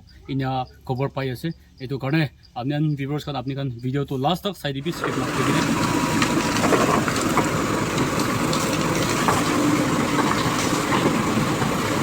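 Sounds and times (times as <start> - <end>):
diesel engine running: 4.8 - 12.0.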